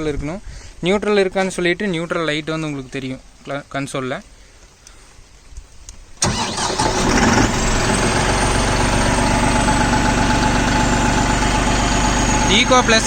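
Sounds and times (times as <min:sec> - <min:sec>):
tractor diesel engine starting: 0:06.2 - 0:13.0.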